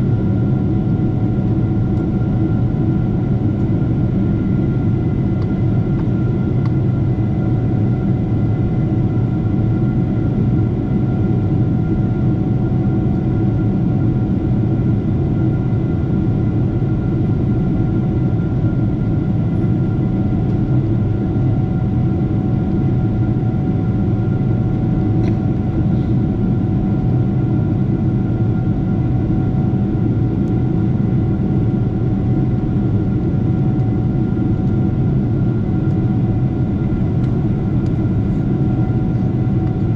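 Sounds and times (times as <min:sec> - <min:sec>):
jet engines droning: 0:00.0 - 0:39.9.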